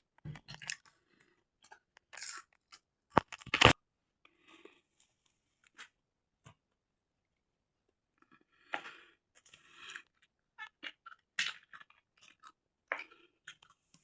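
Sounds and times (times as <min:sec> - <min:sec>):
crunchy fries being chewed: 0:01.6 - 0:03.8, 0:08.2 - 0:14.0.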